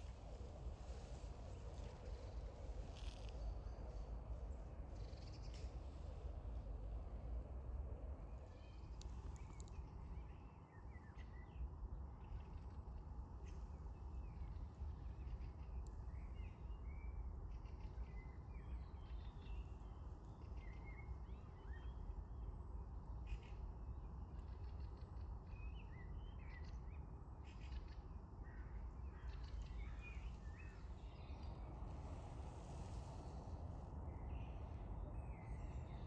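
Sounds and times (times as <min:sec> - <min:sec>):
low background rumble: 0:28.4 - 0:36.0.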